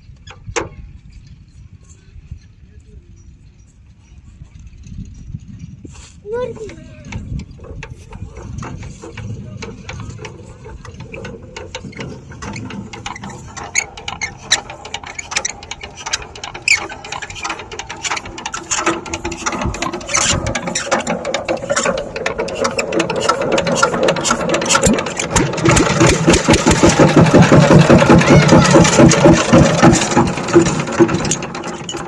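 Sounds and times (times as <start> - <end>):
diesel engine cranking and starting: 6.4 - 32.0.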